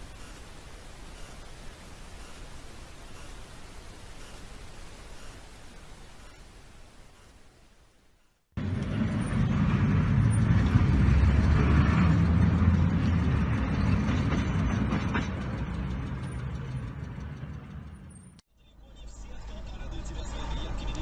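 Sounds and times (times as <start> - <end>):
vehicle engine and road noise: 8.2 - 21.0.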